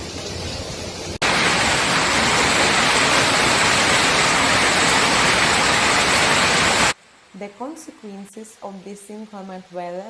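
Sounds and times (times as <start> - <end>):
heavy rain and hail: 1.2 - 7.0.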